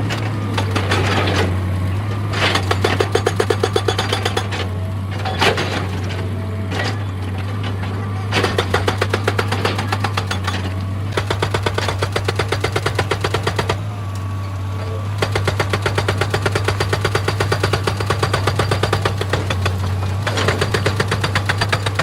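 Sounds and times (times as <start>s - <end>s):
diesel engine hum: 0.0s - 22.0s
hydraulic rock breaker hammering stone: 0.1s - 1.6s, 2.3s - 6.1s, 8.2s - 13.9s, 15.1s - 22.0s.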